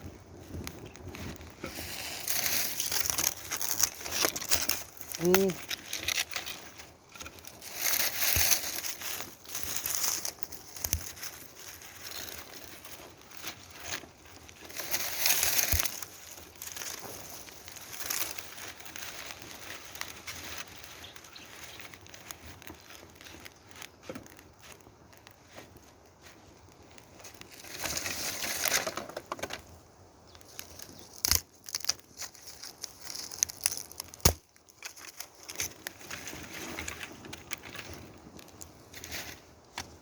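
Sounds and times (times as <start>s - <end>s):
dry material rustling: 0.0s - 29.6s, 30.4s - 40.0s.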